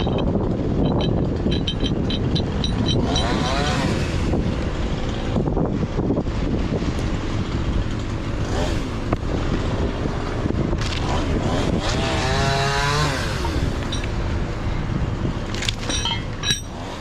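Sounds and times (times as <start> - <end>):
wind buffeting microphone: 0.0 - 17.0
small engine revving: 1.2 - 14.2.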